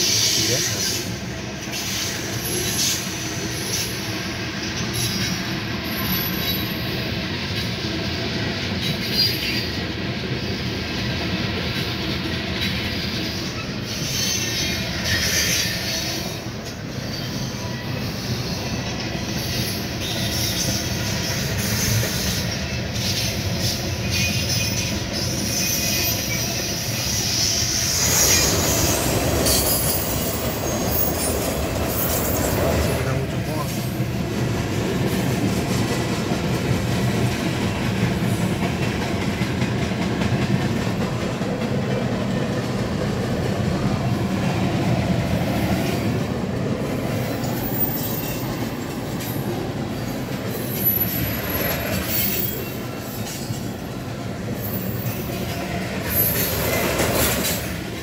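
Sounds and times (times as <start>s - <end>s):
freight train cars rolling past: 0.0s - 58.0s
steel wheels on rails: 0.0s - 58.0s.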